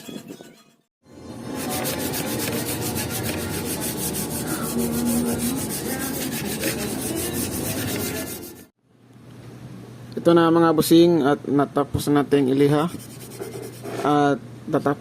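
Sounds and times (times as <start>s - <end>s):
sandpaper rubbing wood: 1.5s - 8.7s, 12.9s - 14.1s.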